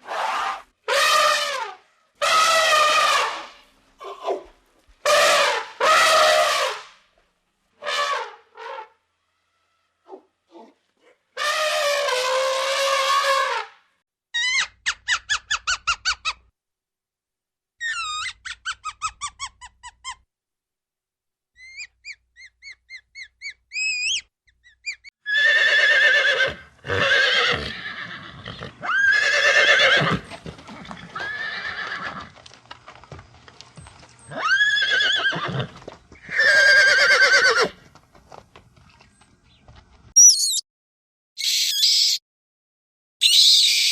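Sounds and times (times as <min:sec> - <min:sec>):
rising and falling calls: 0:21.6 - 0:26.4, 0:40.2 - 0:40.6, 0:41.4 - 0:42.2, 0:43.2 - 0:43.9
short high chirps: 0:40.2 - 0:40.6, 0:41.4 - 0:42.2.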